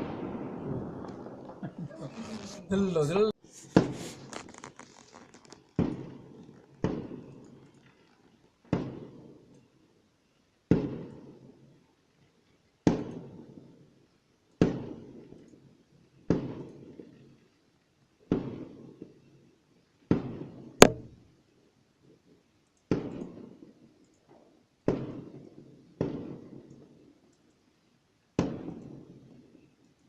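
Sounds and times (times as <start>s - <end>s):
fireworks bangs with echo: 0.0s - 1.8s, 5.8s - 7.3s, 8.7s - 9.3s, 10.7s - 11.3s, 14.6s - 15.0s, 24.9s - 25.4s, 26.0s - 26.5s
sharp firework crack: 0.0s - 2.7s, 3.6s - 7.4s, 8.7s - 9.2s, 10.7s - 11.3s, 14.6s - 15.1s, 20.1s - 21.2s, 24.9s - 25.3s.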